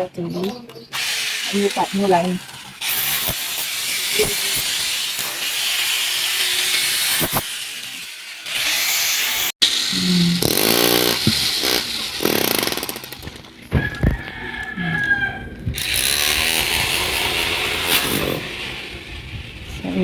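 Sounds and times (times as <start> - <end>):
power tool drilling into floor: 10.4 - 13.5, 15.8 - 19.0.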